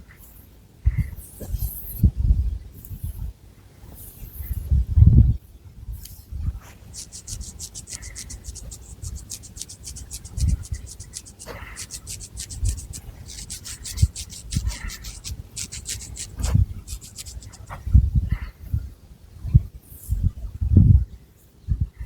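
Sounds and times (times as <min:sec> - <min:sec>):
fingernails scratching hair and scalp: 0:06.7 - 0:17.8.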